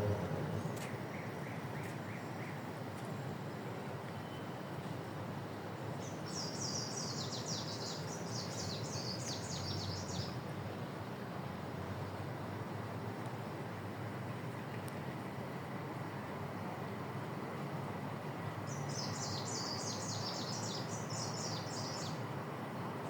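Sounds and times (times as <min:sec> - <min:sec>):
songbirds chirping: 0:00.0 - 0:04.8, 0:05.5 - 0:12.5, 0:16.5 - 0:23.0
steady background hiss: 0:00.0 - 0:23.0.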